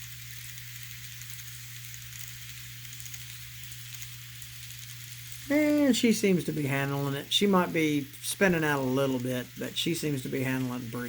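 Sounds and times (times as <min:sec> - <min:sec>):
small wheels rolling on rail: 0:00.0 - 0:11.0.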